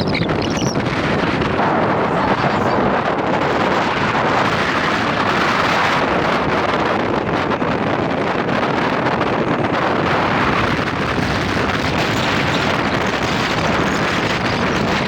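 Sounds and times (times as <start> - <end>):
low rumble: 0.0 - 5.1
wind buffeting microphone: 0.0 - 15.0.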